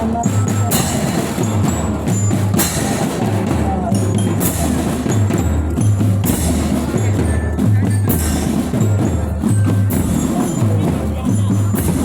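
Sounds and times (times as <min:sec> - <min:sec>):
bass drums beating: 0:00.0 - 0:12.0
high bell notes: 0:00.0 - 0:12.0
cymbal crashes: 0:00.7 - 0:03.6.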